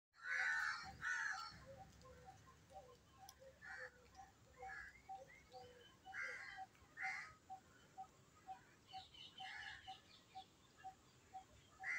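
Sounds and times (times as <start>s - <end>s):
harsh crow-like bird calls: 0.2s - 7.5s, 8.9s - 10.0s
soft bird chirps: 0.9s - 11.9s.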